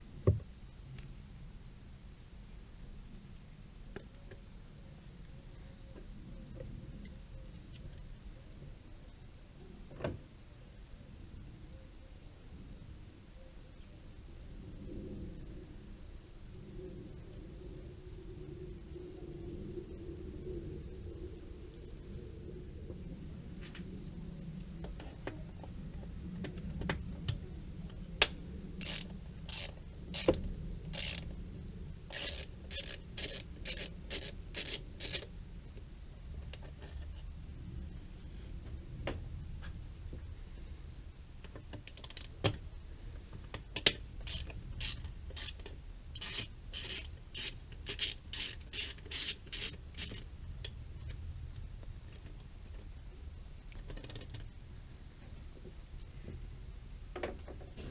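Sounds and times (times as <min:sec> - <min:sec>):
ratchet wrench clicking: 0:28.8 - 0:30.4, 0:31.0 - 0:31.3, 0:32.1 - 0:35.3, 0:41.8 - 0:42.3, 0:44.2 - 0:50.2.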